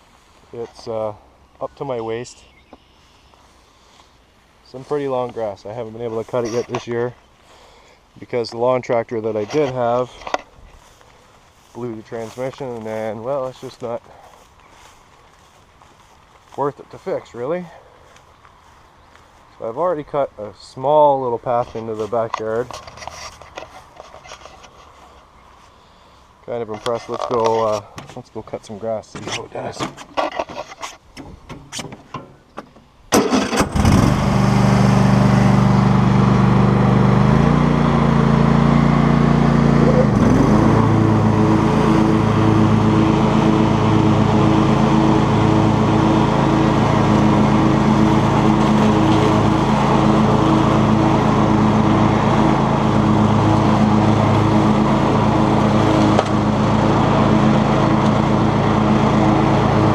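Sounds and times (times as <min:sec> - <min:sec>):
lawn tractor engine running: 0:04.6 - 0:30.8, 0:33.1 - 0:59.9.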